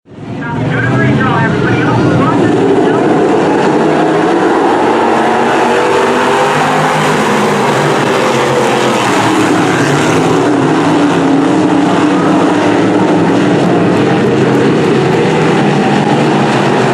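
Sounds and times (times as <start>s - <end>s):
race car engines running: 0.1s - 16.9s.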